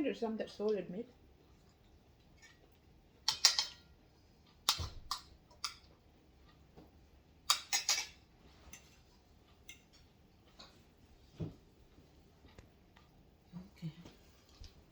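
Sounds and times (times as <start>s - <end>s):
cutlery clicks and taps: 3.2s - 3.9s, 4.6s - 5.9s, 7.5s - 9.0s.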